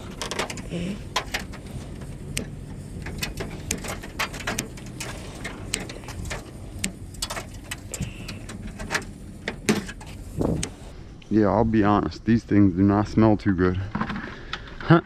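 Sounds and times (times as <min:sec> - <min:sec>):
metal shelving clicks and knocks: 0:00.0 - 0:10.8.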